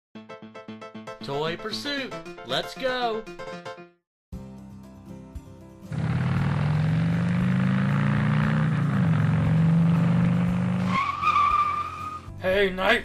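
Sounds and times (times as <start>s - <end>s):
motorcycle engine running: 5.9s - 10.8s.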